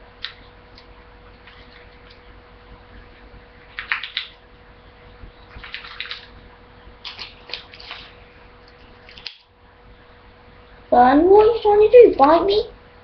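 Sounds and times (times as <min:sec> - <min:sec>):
faint steady hum: 0:00.0 - 0:13.0
bird tearing paper crackling: 0:05.5 - 0:06.3, 0:07.0 - 0:09.5.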